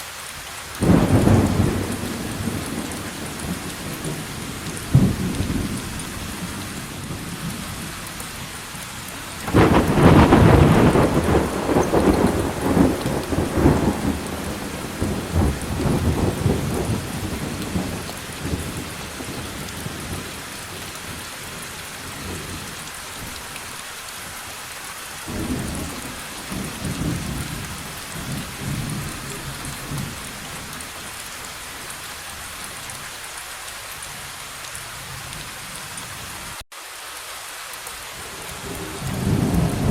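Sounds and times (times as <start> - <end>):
heavy rain: 0.0 - 39.9
thunder crack and rumble: 0.8 - 7.9, 9.4 - 20.3, 25.3 - 30.7, 38.7 - 39.9.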